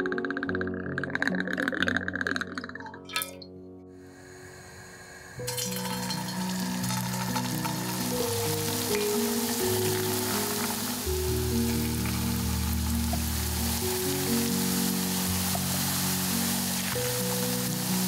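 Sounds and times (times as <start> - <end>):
background music with held notes: 5.4 - 18.0
food sizzling in hot oil: 5.4 - 18.0.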